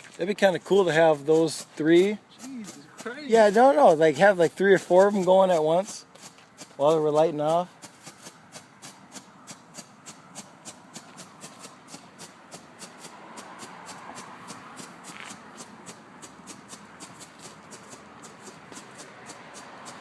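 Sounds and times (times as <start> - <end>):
strobe firework popping: 7.7 - 20.0.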